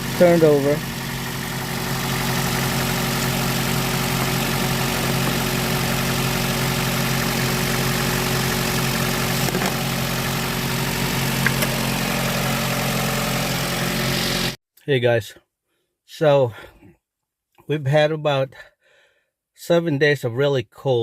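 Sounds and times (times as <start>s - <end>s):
car engine idling: 0.0s - 14.6s.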